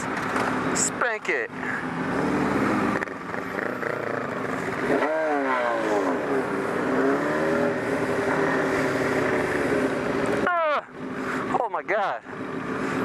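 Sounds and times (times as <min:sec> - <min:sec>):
road and wind noise: 0:00.0 - 0:13.0
motorcycle engine revving: 0:01.5 - 0:11.6.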